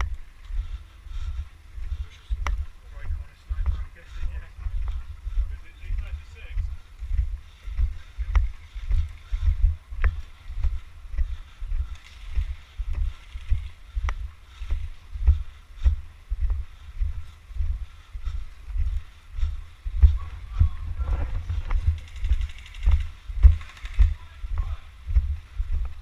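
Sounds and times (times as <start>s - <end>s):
sharp clicks: 22.0s - 24.2s.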